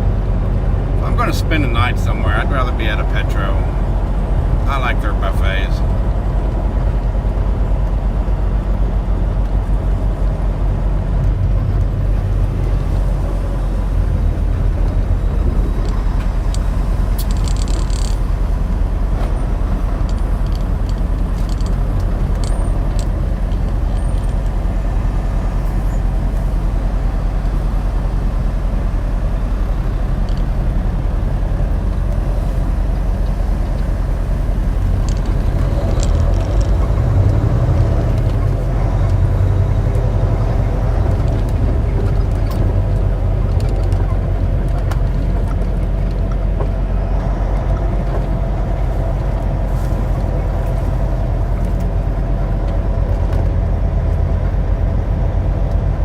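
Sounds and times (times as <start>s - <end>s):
diesel truck engine rumbling: 0.0s - 56.0s
road noise: 0.0s - 56.0s.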